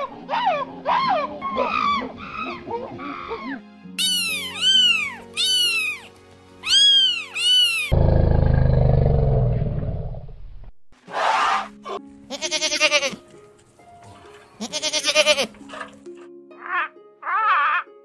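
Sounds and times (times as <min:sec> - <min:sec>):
soft background music: 0:00.0 - 0:07.9, 0:11.0 - 0:18.0
cat meowing: 0:04.0 - 0:07.9
deep rumbling roar: 0:07.9 - 0:10.7.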